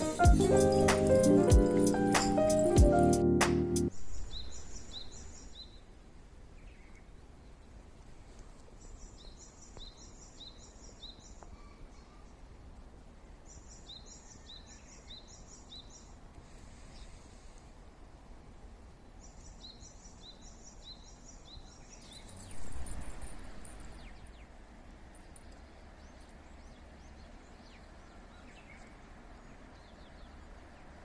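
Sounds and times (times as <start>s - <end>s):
music track: 0.0s - 3.9s
faint outdoor background: 0.0s - 31.0s.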